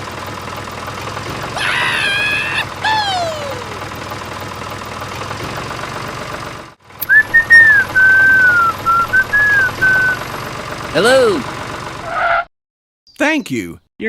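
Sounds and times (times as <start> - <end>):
person whistling a tune: 7.0 - 10.2.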